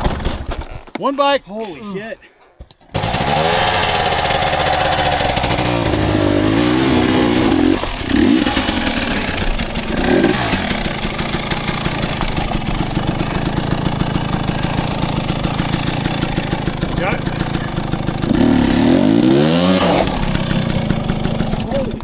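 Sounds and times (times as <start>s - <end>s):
dirt bike engine revving: 2.9s - 22.0s.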